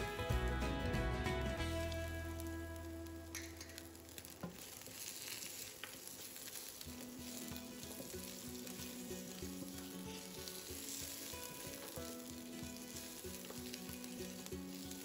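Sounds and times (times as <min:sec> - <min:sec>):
quiet background music: 0:00.0 - 0:15.0
food sizzling in oil: 0:01.6 - 0:15.0
spatula stirring in wok: 0:04.2 - 0:15.0.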